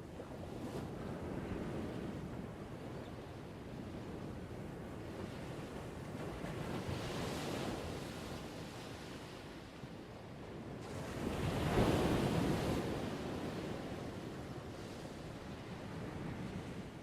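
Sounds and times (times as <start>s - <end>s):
ocean waves washing ashore: 4.1s - 17.0s.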